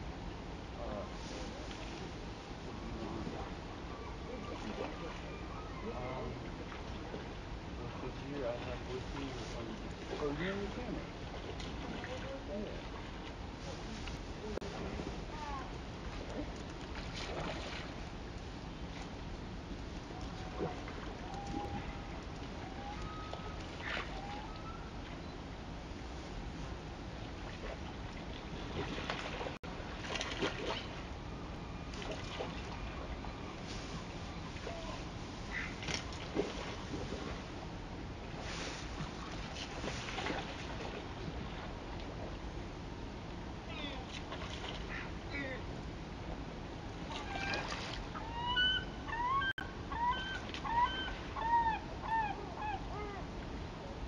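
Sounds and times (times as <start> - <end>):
water splashes: 4.2 - 18.2, 20.0 - 25.2, 27.1 - 31.2, 31.9 - 37.6, 38.2 - 42.3, 43.9 - 45.7, 47.0 - 48.4
bird honking calls: 48.2 - 52.8.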